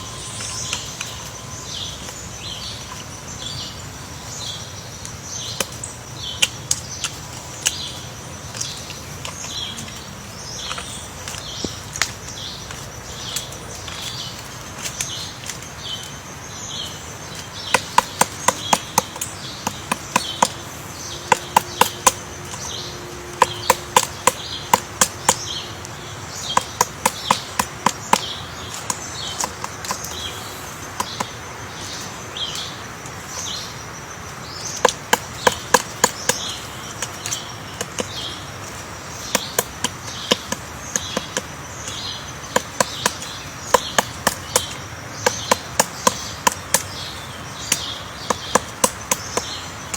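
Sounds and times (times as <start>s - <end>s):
sharp taps or knocks: 34.7s - 47.0s.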